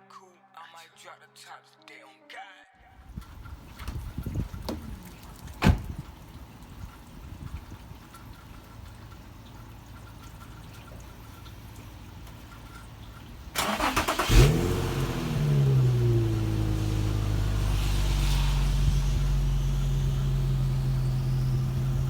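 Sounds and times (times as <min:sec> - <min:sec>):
car engine starting and idling: 0:08.0 - 0:22.0.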